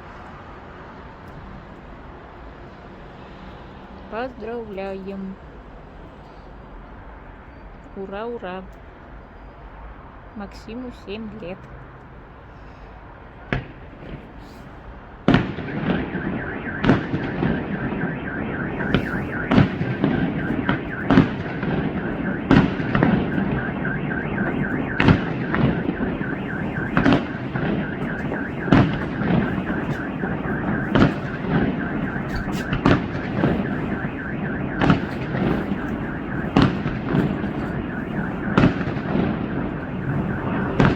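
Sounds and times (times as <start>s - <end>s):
dense crackling rumble: 13.4s - 40.9s
firework shots and bursts: 15.3s - 40.9s
steady wavering tone: 16.2s - 40.9s.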